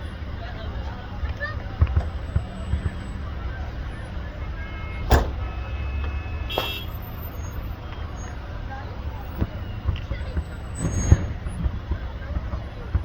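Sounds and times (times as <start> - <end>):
fireworks bang: 1.3 - 3.3, 4.8 - 7.2, 9.4 - 13.0.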